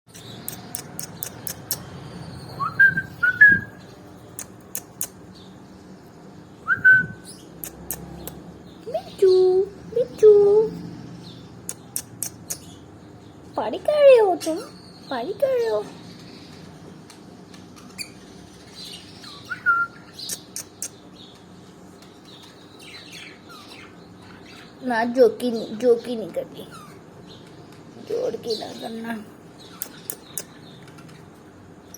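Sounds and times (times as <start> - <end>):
sharp clicks: 0.1 - 1.9, 4.3 - 5.2, 7.6 - 8.4, 11.6 - 12.7, 20.2 - 21.0, 29.8 - 31.0
parrot chirps and squeaks: 0.1 - 5.2, 6.8 - 9.3, 11.6 - 12.8, 14.1 - 15.8, 17.8 - 21.0, 26.6 - 27.1, 29.6 - 30.6
parrot whistled chirp: 2.6 - 3.8, 6.6 - 7.3, 19.4 - 20.1.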